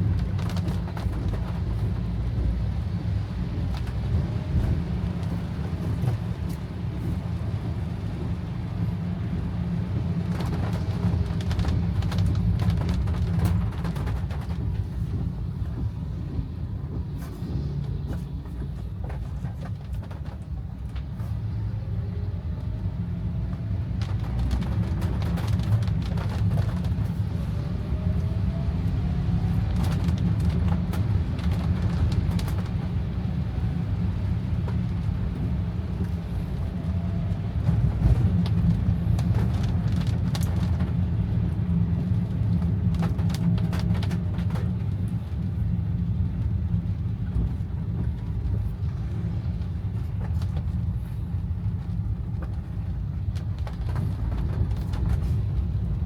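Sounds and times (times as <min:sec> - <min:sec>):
engine and road rumble: 0:00.0 - 0:56.0.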